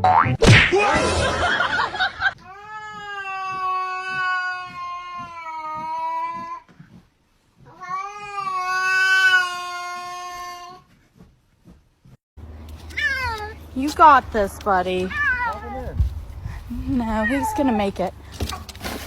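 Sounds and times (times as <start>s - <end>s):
cat yowling: 12.9s - 13.6s, 15.1s - 16.0s.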